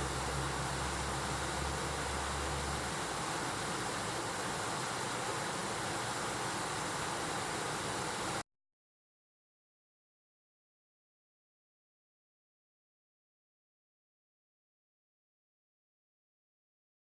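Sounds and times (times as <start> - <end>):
low hum: 0.0 - 3.3
stream rushing over rocks: 0.0 - 8.4.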